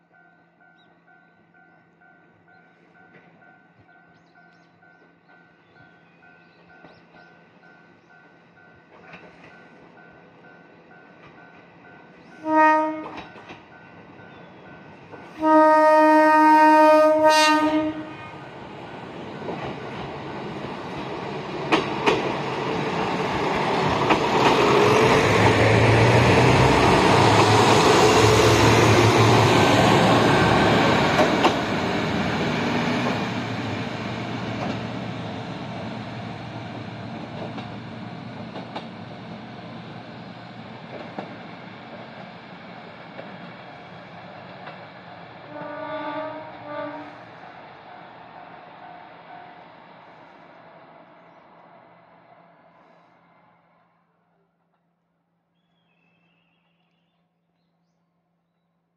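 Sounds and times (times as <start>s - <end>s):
train engine and wheel rumble: 0.0s - 54.8s
train horn blasts: 12.4s - 13.2s, 15.4s - 18.5s, 45.5s - 47.3s.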